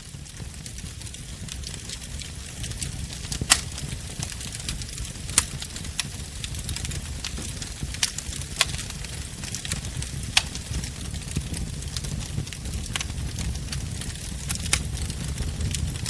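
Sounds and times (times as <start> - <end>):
bonfire crackling: 0.0 - 16.0
low rumble of flames: 0.0 - 16.0
sharp loud wood pops: 3.5 - 3.8.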